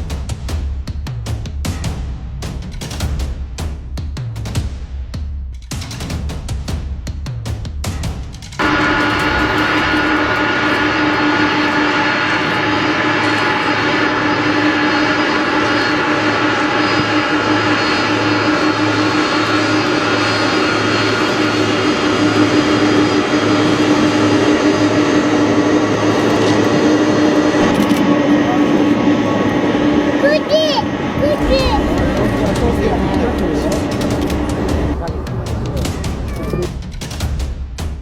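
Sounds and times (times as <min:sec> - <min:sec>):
airplane engines droning: 0:08.6 - 0:36.8
engine whining tones: 0:08.6 - 0:36.8.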